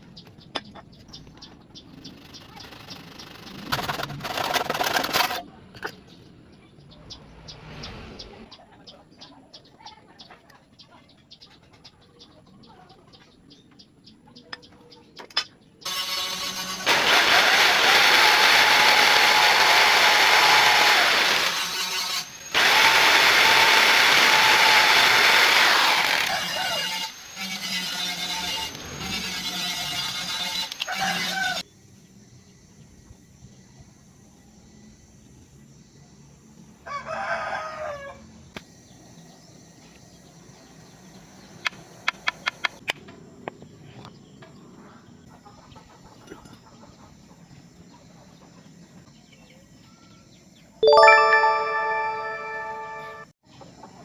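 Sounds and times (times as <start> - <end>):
electric power tool whining: 15.9 - 31.6
rooster crowing: 36.8 - 38.2.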